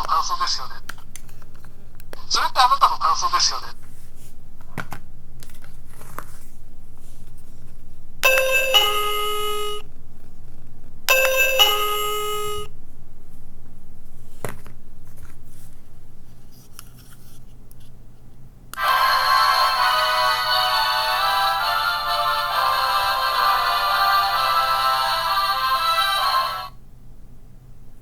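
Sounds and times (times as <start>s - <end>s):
two-note chime: 8.2s - 9.8s, 11.1s - 12.7s.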